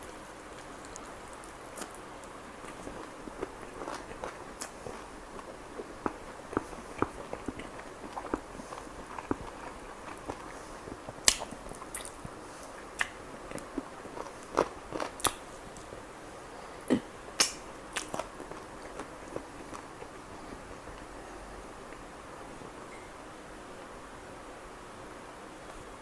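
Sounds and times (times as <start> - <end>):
person chewing food: 0.0 - 16.0, 16.6 - 21.1
mouth clicks and smacks: 11.2 - 12.3, 15.2 - 15.5, 16.9 - 18.3.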